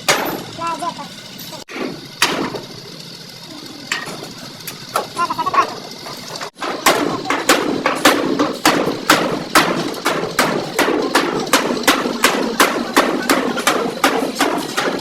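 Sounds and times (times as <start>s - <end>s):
hammer beating sheet metal panel: 1.7s - 2.6s, 6.6s - 15.0s.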